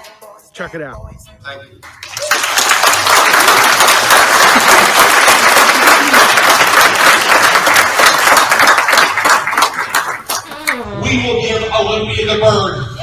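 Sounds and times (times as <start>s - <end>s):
crowd applauding: 1.8s - 10.9s.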